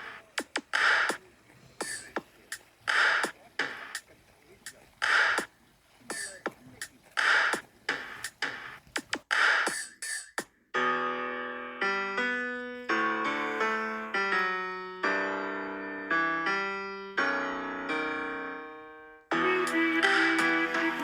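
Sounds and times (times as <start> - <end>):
short noisy bursts and clicks: 1.8 - 5.5
solo piano notes: 10.8 - 21.0.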